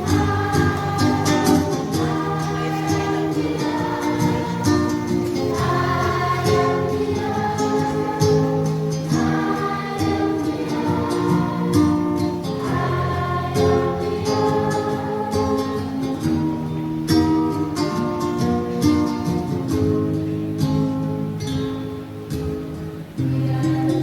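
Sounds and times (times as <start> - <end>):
choir singing: 0.0 - 16.7, 23.2 - 24.0
strummed guitar: 0.0 - 24.0.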